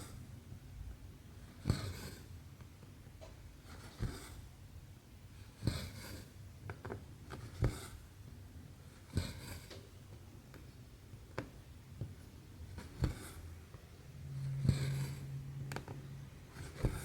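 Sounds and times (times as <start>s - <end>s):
thread rasping through canvas: 12.7s - 13.4s, 14.5s - 17.0s.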